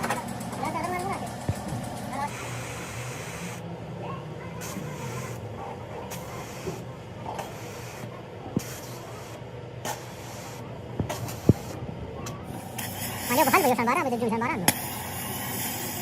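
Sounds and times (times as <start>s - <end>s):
low mechanical hum: 0.0s - 16.0s
bursts of hiss: 12.6s - 14.0s.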